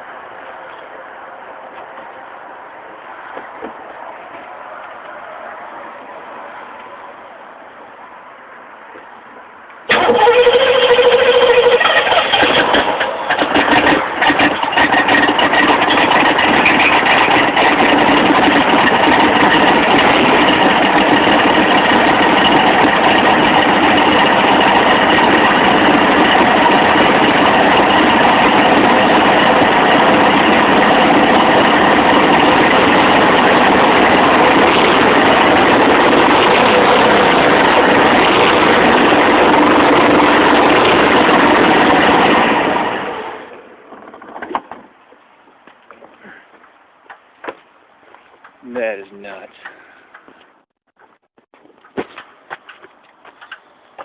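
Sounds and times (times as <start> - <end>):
car engine idling: 9.8 - 45.6.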